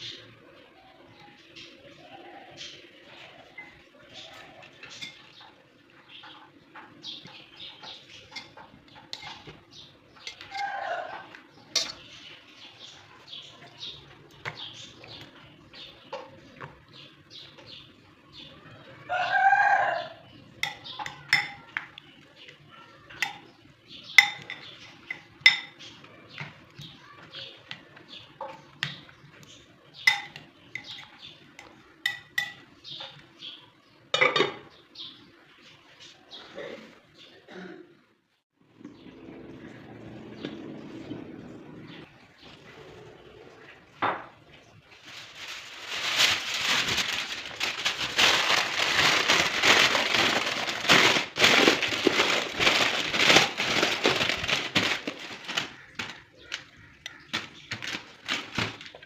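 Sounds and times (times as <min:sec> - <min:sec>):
small birds chirping: 0:00.0 - 0:37.6, 0:38.6 - 0:59.0
dishes and cutlery clinking: 0:03.6 - 0:05.6, 0:07.8 - 0:09.6, 0:10.2 - 0:12.1, 0:20.6 - 0:22.0, 0:23.2 - 0:26.6, 0:30.0 - 0:33.2, 0:34.2 - 0:34.7.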